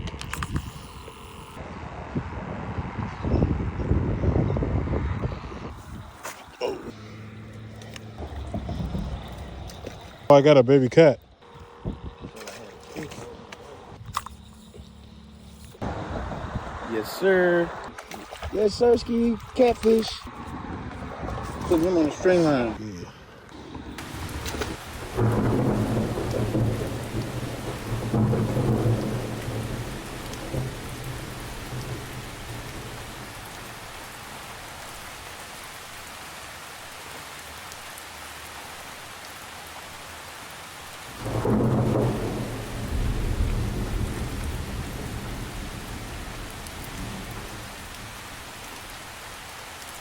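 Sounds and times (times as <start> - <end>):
steady rain falling: 21.4 - 50.0
low rolls of thunder: 24.0 - 34.9, 41.1 - 50.0.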